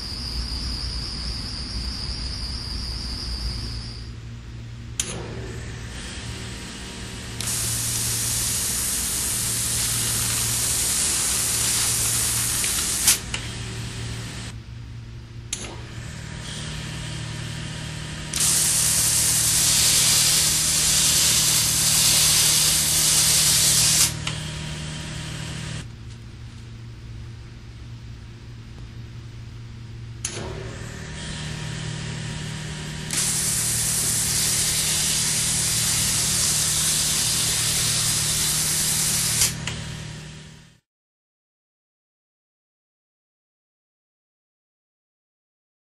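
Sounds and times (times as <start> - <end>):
steady low hum: 0.0 - 40.8
sharp click: 5.0 - 5.3
water-vapour jet hissing: 7.4 - 13.2, 33.1 - 39.5.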